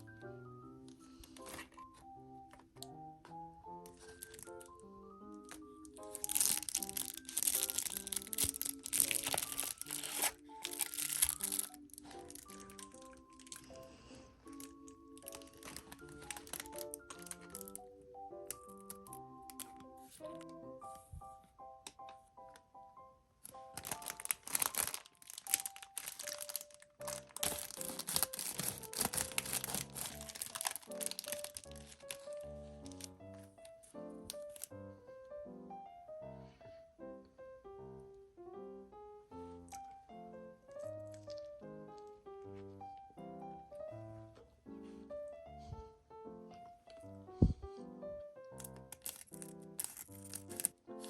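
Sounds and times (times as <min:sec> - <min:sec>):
background music: 0:00.0 - 0:51.0
plastic wrapper crinkling and tearing: 0:00.9 - 0:02.0, 0:03.8 - 0:20.6, 0:23.4 - 0:34.8, 0:48.5 - 0:51.0.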